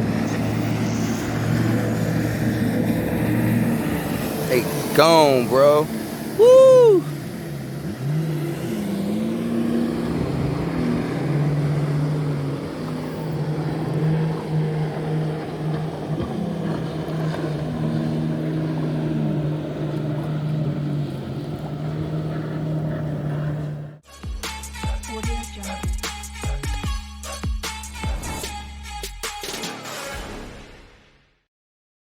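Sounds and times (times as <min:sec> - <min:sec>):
boat engine drone: 0:00.0 - 0:24.0
passing boat engine: 0:00.0 - 0:24.0.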